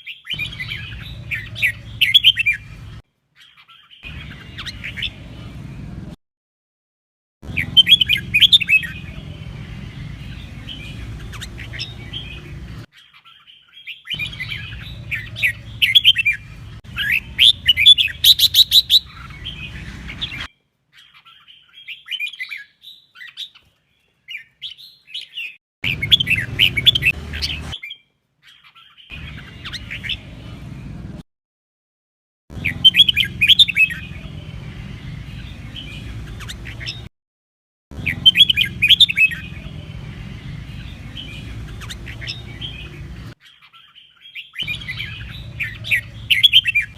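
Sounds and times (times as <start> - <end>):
bird singing chattering whistles: 7.5 - 9.1, 17.0 - 20.5, 38.0 - 39.7, 43.6 - 46.9.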